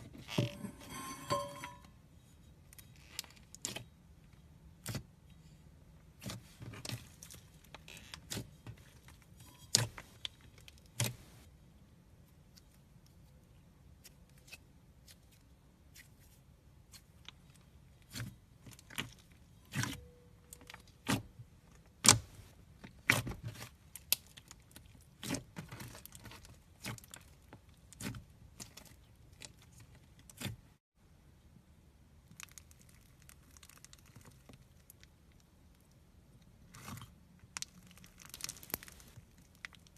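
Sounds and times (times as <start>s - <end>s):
slime crackling and popping: 32.2s - 35.8s, 36.8s - 39.9s.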